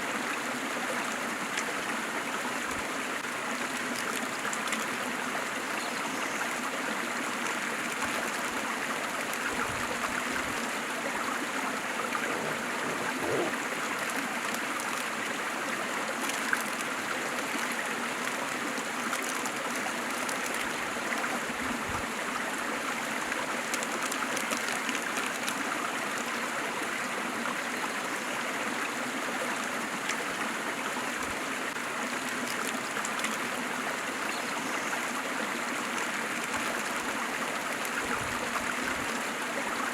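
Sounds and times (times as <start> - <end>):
waterfall rushing: 12.0 - 13.6.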